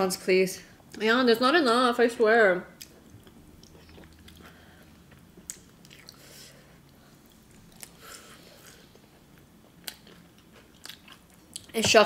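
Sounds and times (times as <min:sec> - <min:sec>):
person chewing and lip-smacking: 0:02.8 - 0:11.8.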